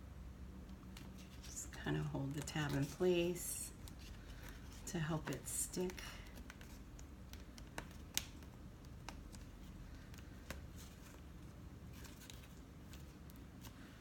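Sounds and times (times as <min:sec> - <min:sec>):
low room hum: 0:00.0 - 0:14.0
cardstock clicks and rustling: 0:00.9 - 0:13.8.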